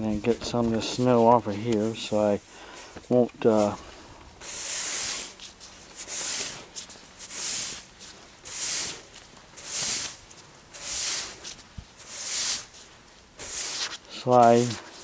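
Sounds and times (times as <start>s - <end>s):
broom swishing through snow: 4.4s - 15.0s.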